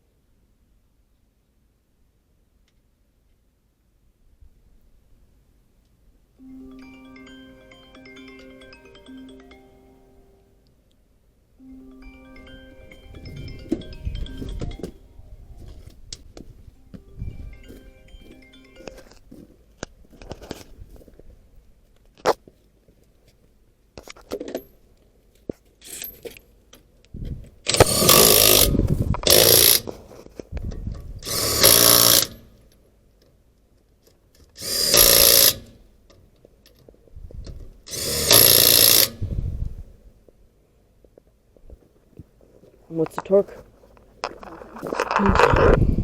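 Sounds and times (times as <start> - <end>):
impact wrench spinning nuts: 27.7 - 30.0, 31.2 - 32.5, 34.6 - 35.8, 37.9 - 39.2.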